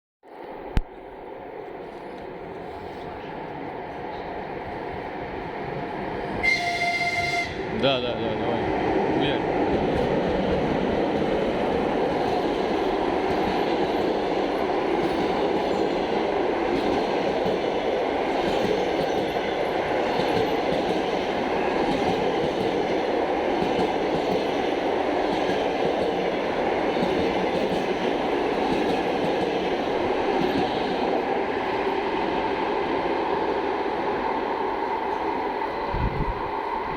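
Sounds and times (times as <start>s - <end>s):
train passing at speed: 0.3s - 36.9s.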